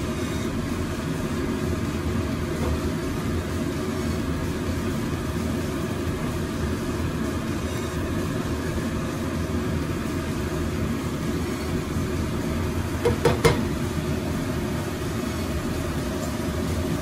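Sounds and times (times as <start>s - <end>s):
chicken frying in oil: 0.0s - 17.0s
spatula tapping pot: 13.0s - 13.7s.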